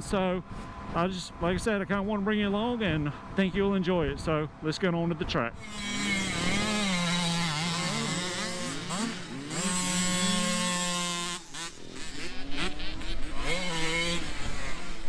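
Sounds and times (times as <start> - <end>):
dirt bike engines revving: 5.6 - 15.0
pulsing engine sound: 5.6 - 15.0.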